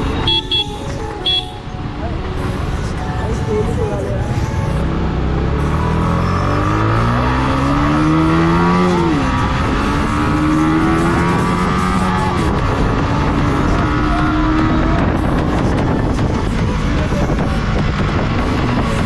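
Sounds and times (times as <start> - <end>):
motorcycle engine revving through gears: 4.8 - 16.1, 17.4 - 19.0.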